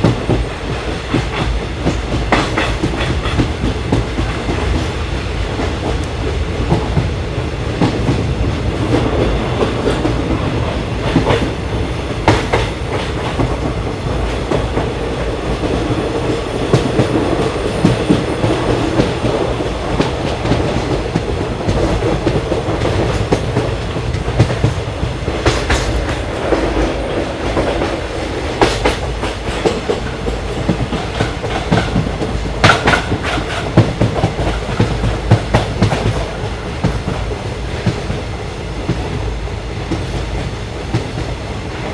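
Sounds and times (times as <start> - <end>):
train rolling rumble: 0.0 - 41.9
wheels clacking over rail joints: 12.2 - 38.2.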